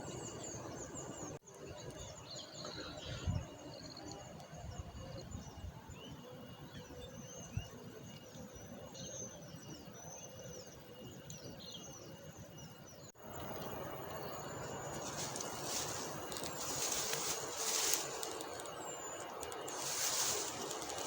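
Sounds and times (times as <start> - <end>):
faint outdoor ambience: 0.0 - 21.0
small birds chirping: 0.0 - 21.0
steady rushing noise with hissing: 13.2 - 21.0.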